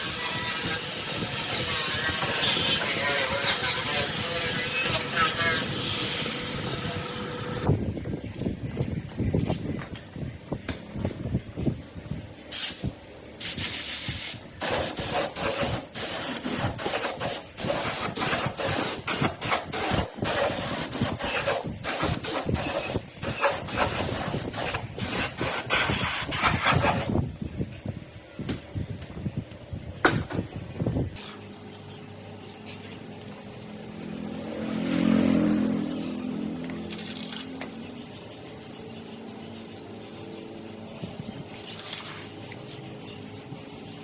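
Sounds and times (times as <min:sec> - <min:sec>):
compressed air spray hissing: 0:12.5 - 0:27.2.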